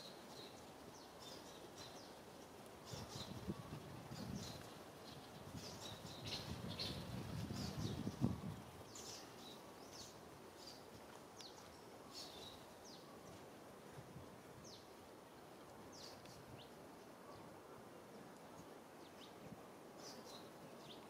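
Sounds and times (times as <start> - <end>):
soft outdoor hiss: 0.0 - 21.0.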